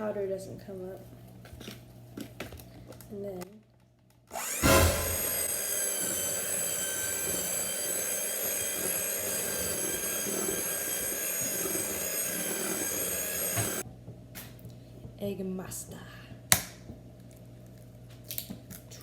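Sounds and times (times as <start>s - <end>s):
electric hand mixer whining: 4.3s - 13.8s.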